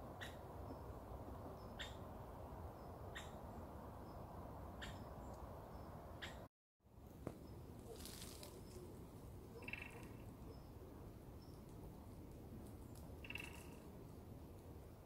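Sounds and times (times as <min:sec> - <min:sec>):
bird sharp call: 0:09.6 - 0:10.2.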